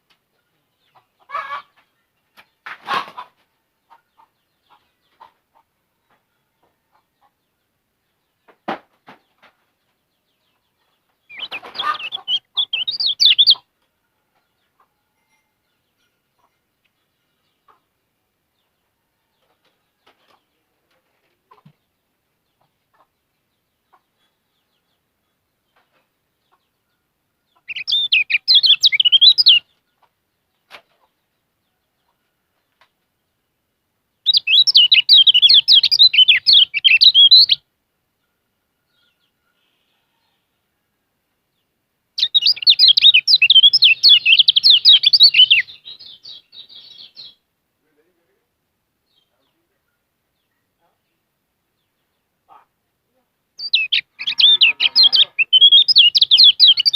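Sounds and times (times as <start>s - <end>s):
songbird warbling chirps: 10.3s - 13.7s, 23.8s - 29.9s, 34.2s - 37.6s, 41.6s - 47.4s, 53.6s - 56.9s.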